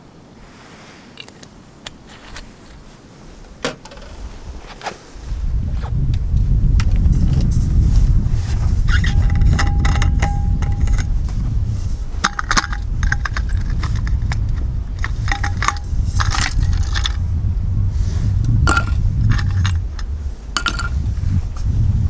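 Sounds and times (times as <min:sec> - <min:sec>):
steady low rumble: 0:04.2 - 0:22.0
metallic clinking and clattering: 0:08.9 - 0:17.3, 0:18.6 - 0:21.4.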